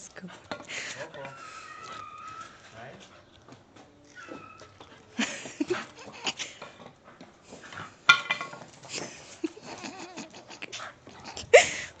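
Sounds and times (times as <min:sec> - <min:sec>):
dog whining and yelping: 0:01.0 - 0:02.8, 0:04.0 - 0:06.6
dog wavering pitched call: 0:01.3 - 0:02.7.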